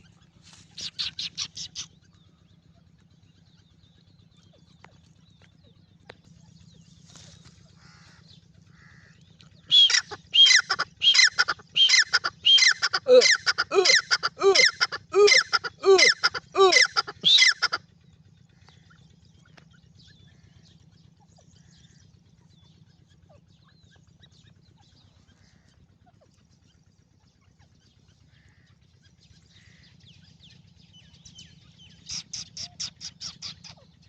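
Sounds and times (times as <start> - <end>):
francolin calling: 0.8 - 1.9, 9.7 - 17.8.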